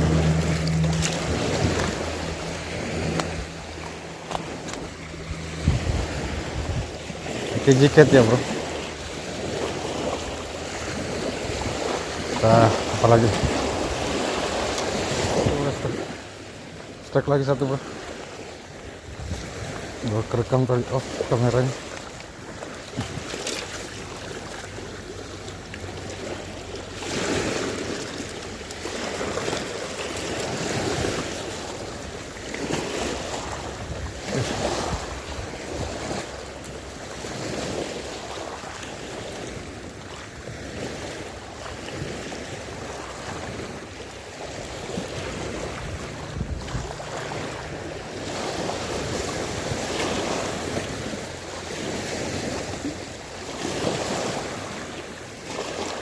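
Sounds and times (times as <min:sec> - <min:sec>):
wind buffeting microphone: 0:00.0 - 0:16.3, 0:18.7 - 0:20.2, 0:29.0 - 0:36.4, 0:44.5 - 0:52.9
waves washing in: 0:00.0 - 0:56.0.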